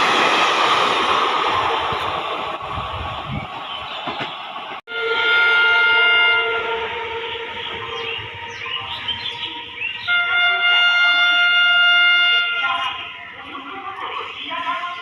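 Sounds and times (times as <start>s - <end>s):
train rumbling and rattling: 0.0s - 15.0s
locomotive air horn: 4.9s - 9.0s, 10.0s - 12.9s.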